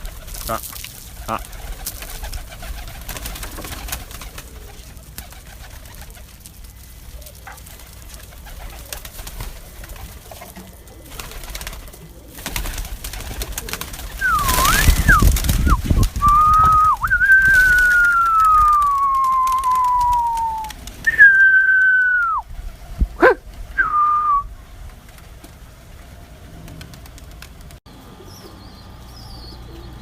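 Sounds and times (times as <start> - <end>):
pigeons cooing: 0.0 - 21.6, 22.2 - 24.2
person whistling: 14.2 - 22.4, 23.8 - 24.5.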